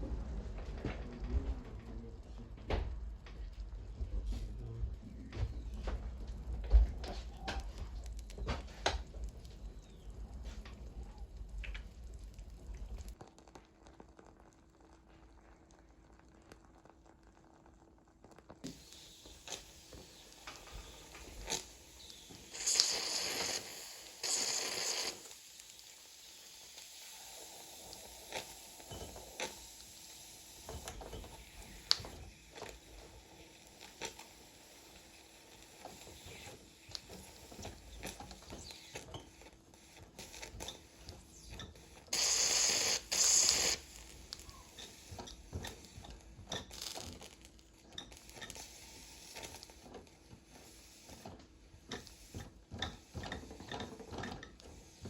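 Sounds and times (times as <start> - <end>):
steam hissing: 18.6 - 55.0.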